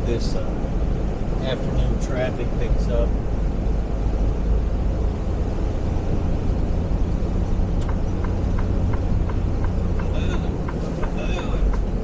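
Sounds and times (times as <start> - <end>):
road noise: 0.0 - 12.0
truck diesel engine rumble: 0.0 - 12.0
light even ticking: 7.7 - 12.0.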